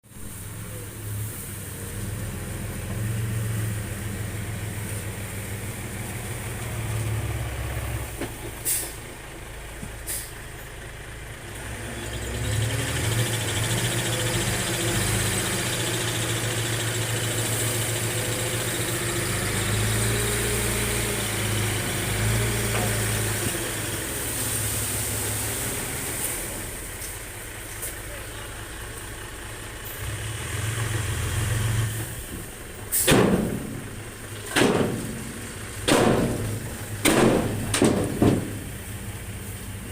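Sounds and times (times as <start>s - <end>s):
farm machine engine running: 32.4s - 39.9s.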